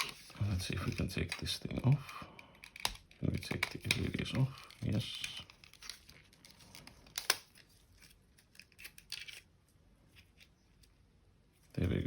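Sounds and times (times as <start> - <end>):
plastic parts clicking and scraping: 0.0 - 9.4.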